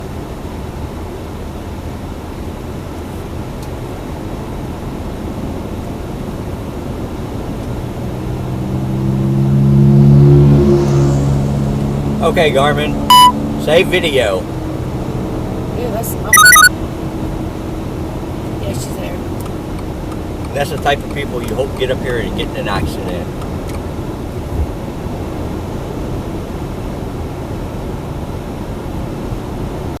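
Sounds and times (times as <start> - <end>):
road and tyre noise in car: 0.0 - 30.0.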